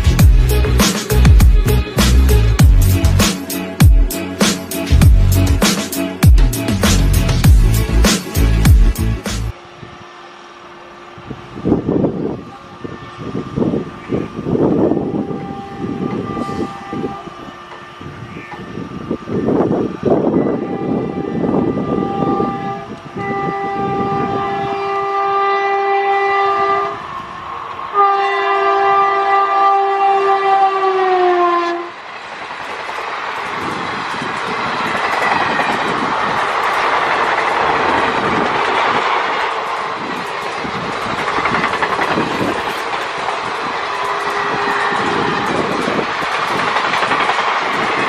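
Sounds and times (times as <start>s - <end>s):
locomotive horn blasts: 14.9s - 18.3s, 20.3s - 27.2s, 27.9s - 32.0s, 44.0s - 45.7s
train wheels clattering on rails: 32.1s - 48.0s.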